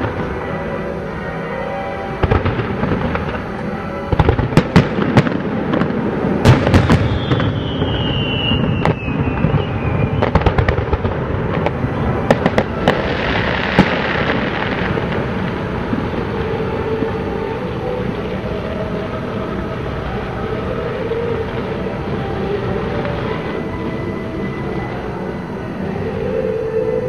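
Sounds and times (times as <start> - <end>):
descending firework whistle: 0.0 - 27.0
fireworks bangs and pops: 2.2 - 17.2.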